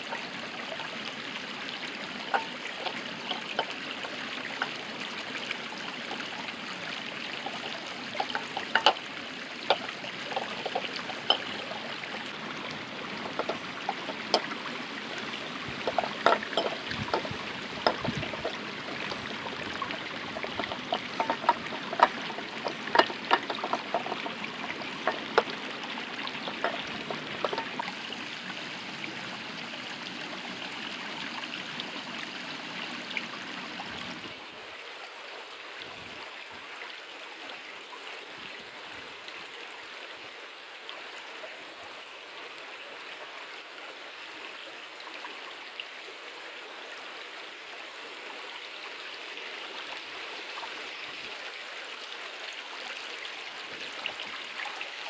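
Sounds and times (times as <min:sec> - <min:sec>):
river water flowing: 0:00.0 - 0:55.0
sharp clicks and knocks: 0:02.3 - 0:03.8, 0:07.4 - 0:09.0, 0:09.7 - 0:12.4, 0:13.2 - 0:14.5, 0:15.7 - 0:27.9.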